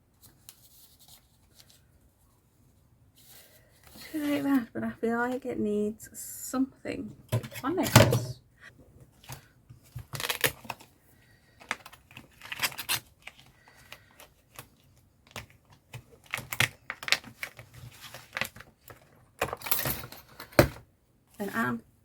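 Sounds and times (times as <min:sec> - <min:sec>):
paper rustling: 0:00.1 - 0:02.3, 0:09.2 - 0:19.2.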